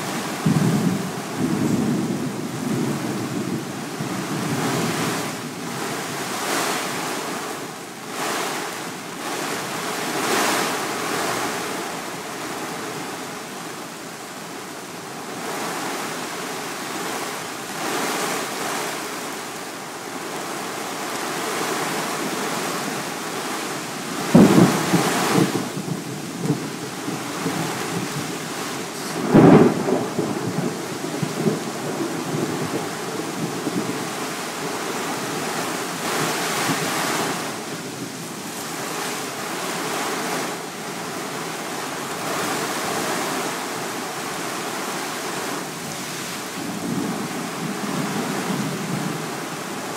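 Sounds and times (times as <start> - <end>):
gusting wind: 0.0 - 49.9
heavy rain: 0.0 - 49.9
thunder cracks: 24.3 - 28.4, 29.0 - 32.8.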